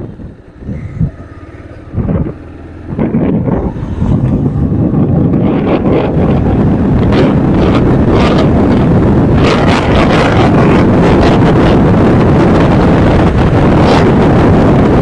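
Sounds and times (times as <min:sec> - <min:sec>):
motorcycle engine and road rumble: 0:00.0 - 0:15.0
wind buffeting microphone: 0:00.0 - 0:15.0.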